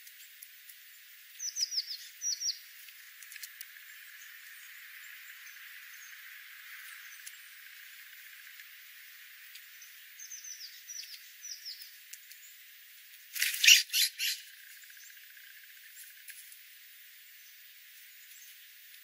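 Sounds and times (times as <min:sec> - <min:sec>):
bird high falling chirps: 0:13.4 - 0:14.4
harsh bird calls: 0:13.4 - 0:15.2.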